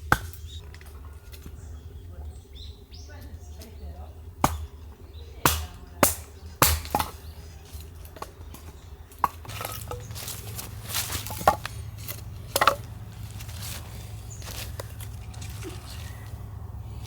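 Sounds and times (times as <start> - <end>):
firewood being chopped: 0.0 - 1.6, 4.4 - 16.4.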